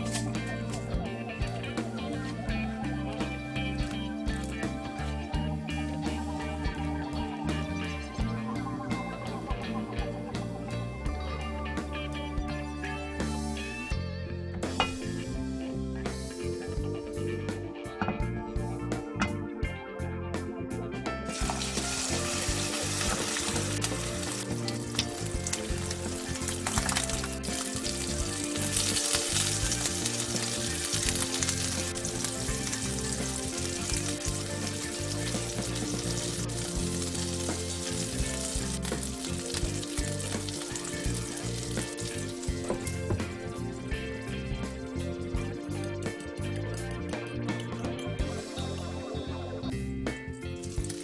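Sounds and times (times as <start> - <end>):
background music: 0.0 - 51.0
batter sizzling in a pan: 21.3 - 45.3.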